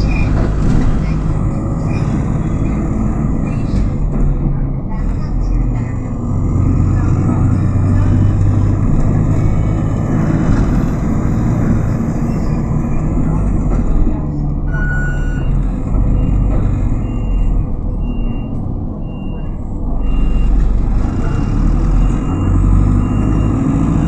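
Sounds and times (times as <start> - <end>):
road traffic rumbling: 0.0 - 24.0
reversing vehicle beeper: 6.7 - 14.0, 14.6 - 24.0.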